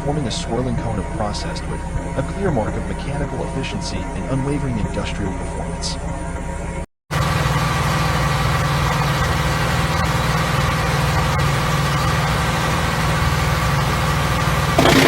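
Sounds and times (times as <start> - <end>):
wood chipper running: 14.8 - 15.0.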